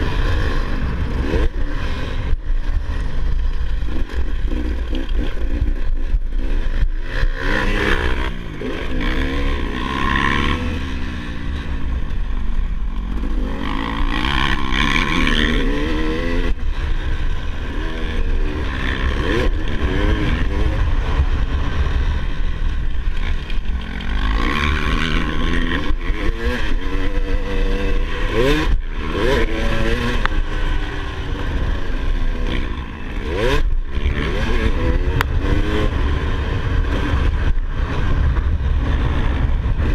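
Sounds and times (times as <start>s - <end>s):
dirt bike engine revving: 0.0s - 39.9s
steady low rumble: 0.0s - 39.9s.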